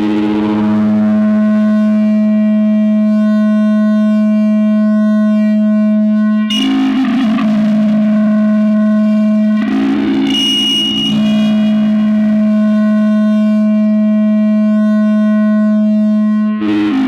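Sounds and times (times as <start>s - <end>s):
electronic feedback drone: 6.5s - 17.0s.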